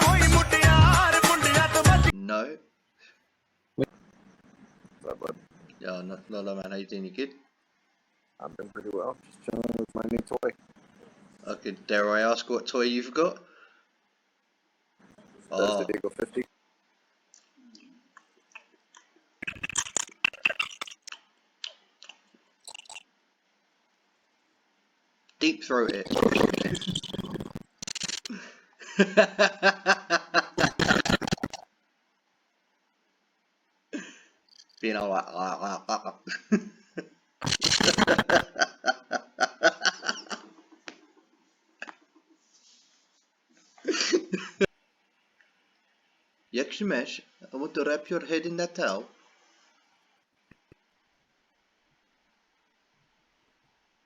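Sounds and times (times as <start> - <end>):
wet chewing and crunching: 18.2 - 23.0
people laughing over video chat: 28.3 - 31.4, 36.2 - 41.2.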